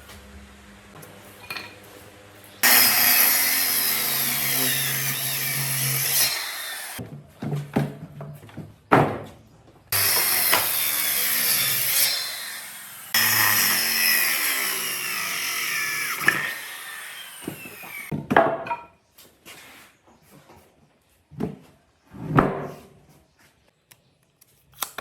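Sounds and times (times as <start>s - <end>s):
power tool working wood: 2.6s - 7.0s, 10.0s - 18.1s.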